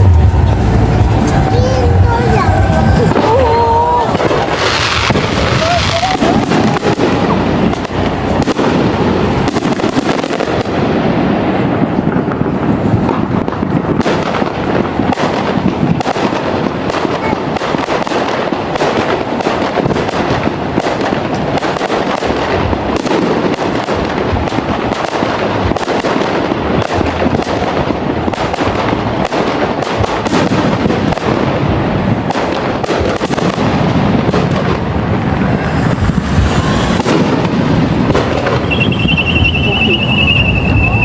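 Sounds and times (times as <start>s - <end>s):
steady rumble: 0.0s - 15.8s, 26.4s - 41.0s
fireworks bangs: 0.0s - 41.0s
fireworks hiss: 3.0s - 10.7s, 28.4s - 41.0s.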